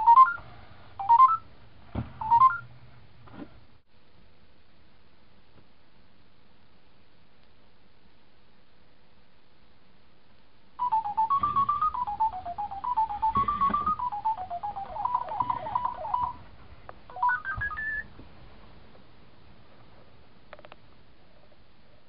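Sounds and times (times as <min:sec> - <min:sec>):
robot dog beeping melody: 0:00.0 - 0:00.4, 0:01.0 - 0:01.4, 0:02.2 - 0:02.6, 0:10.8 - 0:16.4, 0:17.1 - 0:18.0
rising beeps: 0:10.8 - 0:16.4, 0:17.1 - 0:18.1.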